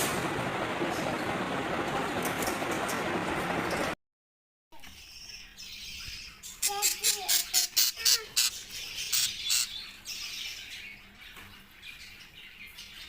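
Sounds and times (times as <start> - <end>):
small birds chirping and squawking: 4.8 - 13.0.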